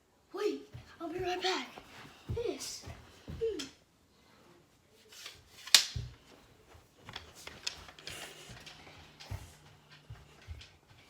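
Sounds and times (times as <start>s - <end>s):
light clicks and rustling: 5.0s - 11.0s.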